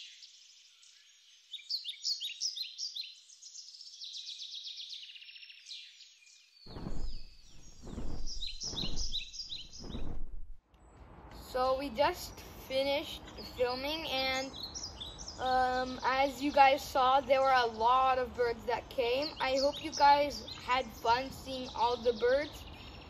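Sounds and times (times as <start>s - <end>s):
small birds chirping: 0.0s - 11.0s, 13.0s - 23.0s
loud low rushing bursts: 6.7s - 10.6s.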